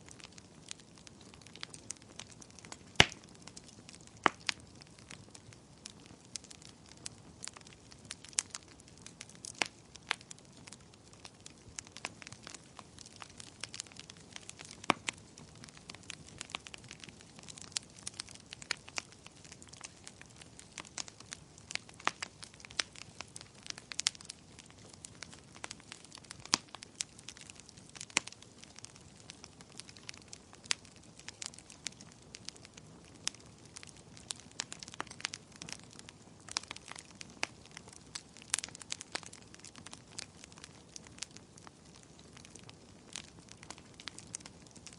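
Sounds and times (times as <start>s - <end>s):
wood fire crackling: 0.0s - 44.9s.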